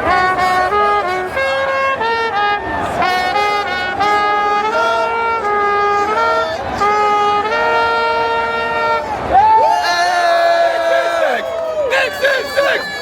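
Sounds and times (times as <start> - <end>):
brass instruments playing chords: 0.0 - 9.4.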